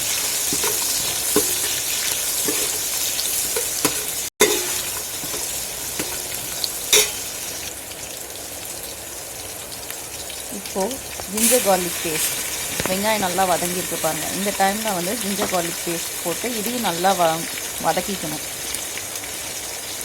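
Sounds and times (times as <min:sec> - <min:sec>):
onions sizzling in hot oil: 0:00.0 - 0:20.0
spoon knocking against pot: 0:00.5 - 0:01.8, 0:02.4 - 0:02.8, 0:03.6 - 0:06.3, 0:07.0 - 0:07.2.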